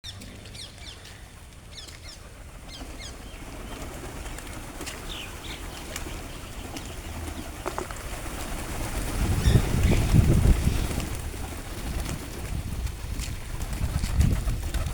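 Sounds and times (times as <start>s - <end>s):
birds chirping: 0.0s - 11.2s.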